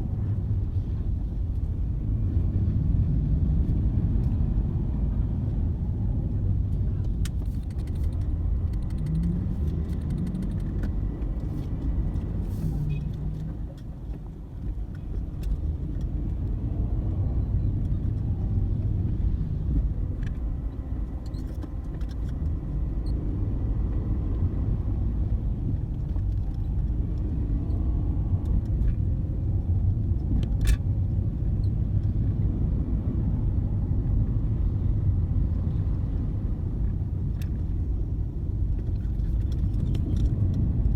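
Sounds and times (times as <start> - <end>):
road traffic rumble: 0.0 - 40.9
faint clicks: 7.0 - 11.5.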